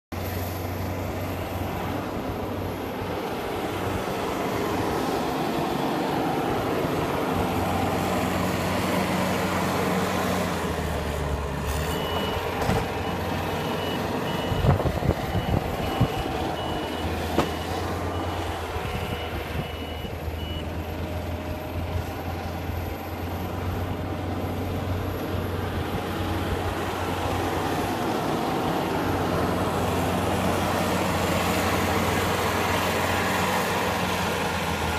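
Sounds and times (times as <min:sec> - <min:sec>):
reversing alarm beeping: 0:11.7 - 0:20.8.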